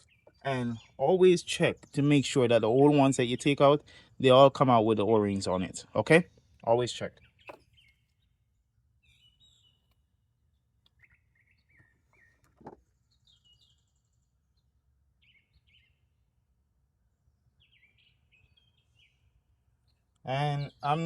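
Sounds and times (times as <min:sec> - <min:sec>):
faint bird chirps: 0:06.2 - 0:16.3, 0:17.0 - 0:21.0.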